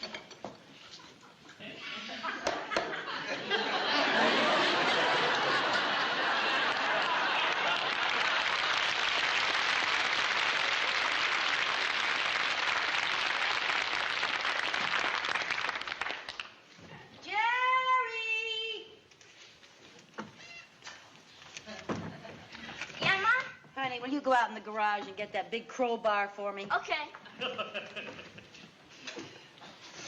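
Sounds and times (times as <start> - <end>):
audience applauding: 5.0 - 16.6.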